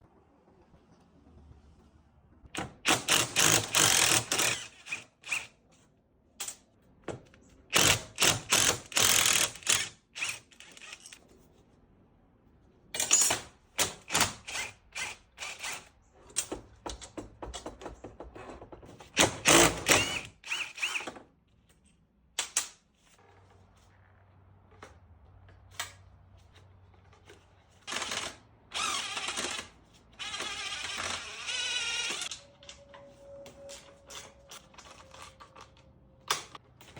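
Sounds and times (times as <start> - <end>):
rapid mechanical clattering of tools: 2.7 - 5.5, 7.7 - 11.2, 18.8 - 21.1, 27.2 - 32.9.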